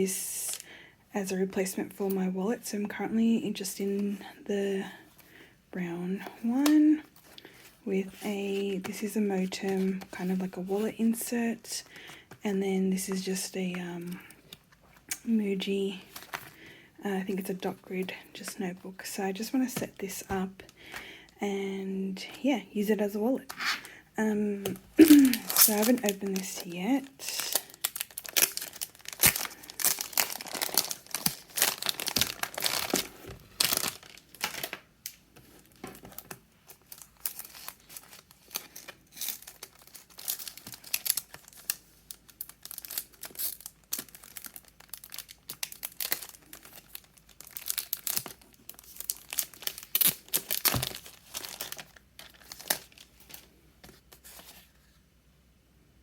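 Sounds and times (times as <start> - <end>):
packaging crinkling and tearing: 24.9 - 54.6.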